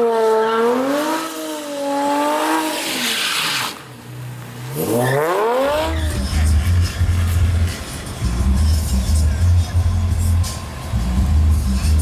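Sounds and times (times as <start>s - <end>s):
car engine revving: 0.0s - 12.0s
tyre squeal: 4.7s - 8.1s
heavy pulsing bass music: 5.7s - 12.0s.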